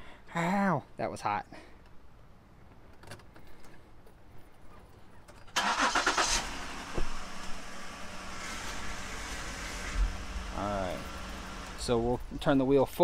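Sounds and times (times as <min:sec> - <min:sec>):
car engine idling: 0:05.6 - 0:12.7.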